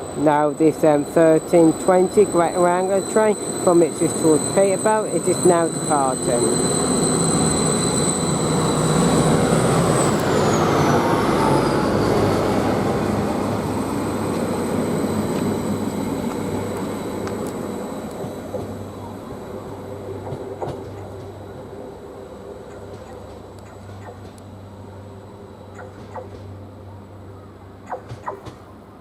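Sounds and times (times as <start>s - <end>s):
high whine falling in pitch: 0.0s - 12.1s
train engines and wheels: 0.0s - 29.0s.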